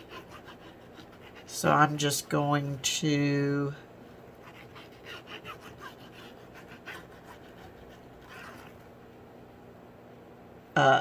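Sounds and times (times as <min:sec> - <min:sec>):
scratchy rustles of craft materials: 0:04.0 - 0:09.3.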